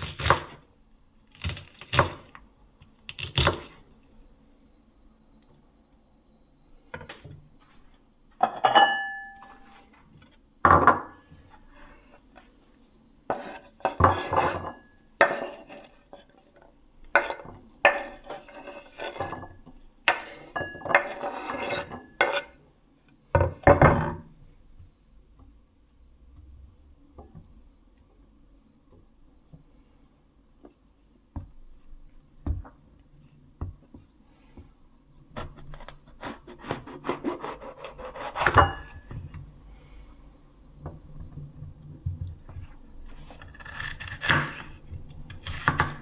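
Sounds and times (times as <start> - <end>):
dishes and utensils clattering: 8.4 - 9.6.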